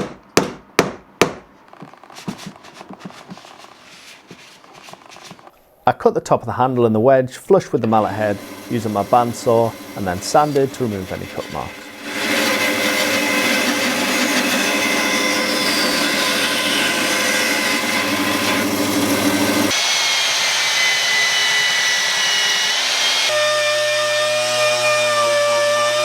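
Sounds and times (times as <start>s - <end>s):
bandsaw cutting wood: 7.8s - 26.0s
power sander sanding: 7.8s - 26.0s.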